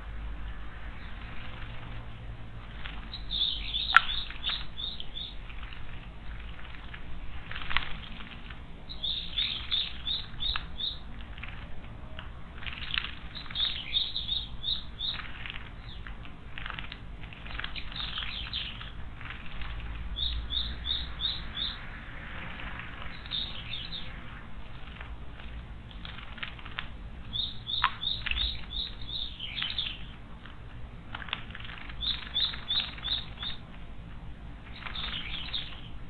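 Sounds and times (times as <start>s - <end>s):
soft brushy sounds: 0.0s - 36.0s
small songbird chirping: 0.4s - 30.2s, 31.5s - 33.8s, 34.6s - 36.0s.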